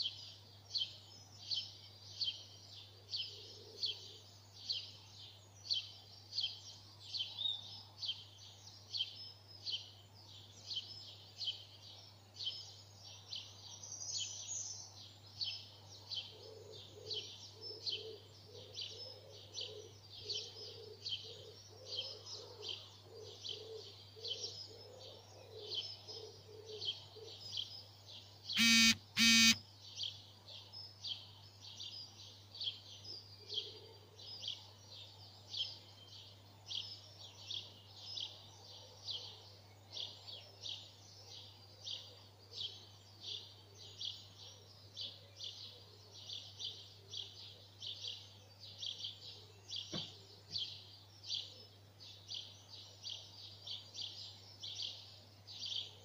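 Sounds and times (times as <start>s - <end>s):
bird chirping: 0.0s - 56.0s
lower repeated bird note: 28.6s - 29.6s.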